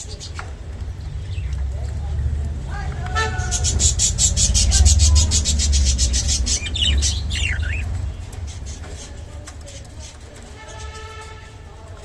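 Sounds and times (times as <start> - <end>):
bird beak scraping: 3.3 - 11.6.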